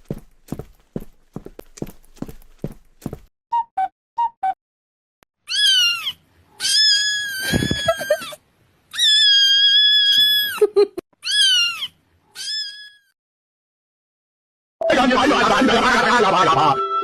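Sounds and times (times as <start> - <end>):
cat meowing: 5.5 - 8.3, 8.9 - 10.6, 11.2 - 13.1.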